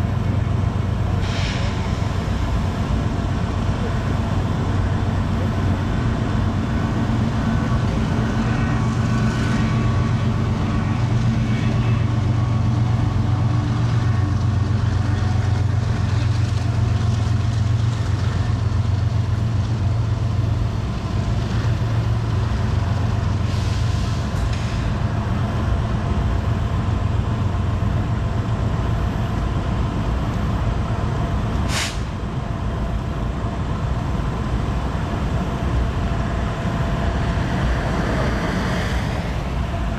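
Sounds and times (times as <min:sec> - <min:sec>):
diesel locomotive engine drone: 0:00.0 - 0:39.9
brief high hiss: 0:01.2 - 0:02.0, 0:31.7 - 0:32.1.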